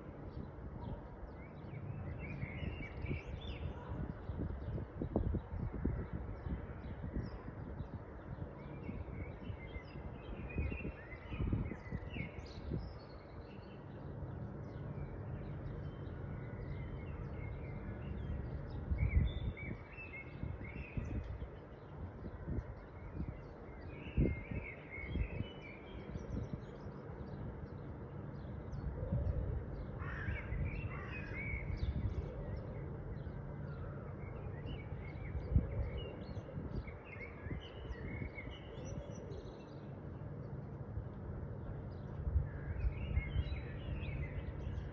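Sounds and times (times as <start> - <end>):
harsh low bird calls: 28.4 - 40.0.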